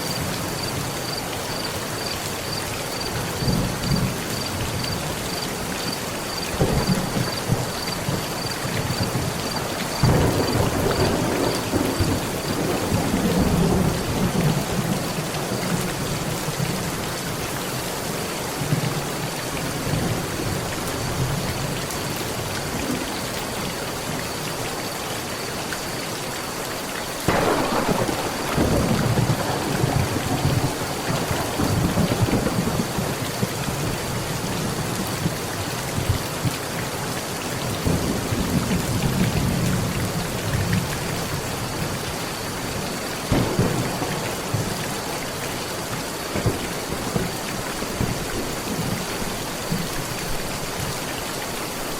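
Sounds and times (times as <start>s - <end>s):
heavy rain on a metal roof: 0.0s - 51.9s
thunder rumbling: 6.5s - 15.1s, 27.3s - 35.3s, 43.3s - 45.6s.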